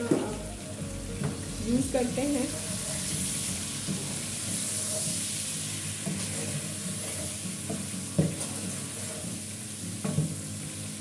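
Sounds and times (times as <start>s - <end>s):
chicken sizzling in oil: 0.0s - 11.0s
wooden spatula scraping pan: 6.0s - 9.4s.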